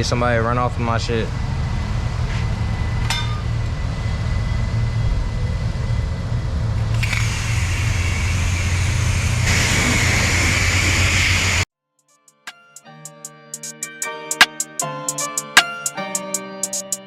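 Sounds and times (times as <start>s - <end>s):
pressure washer spraying: 7.0s - 11.7s.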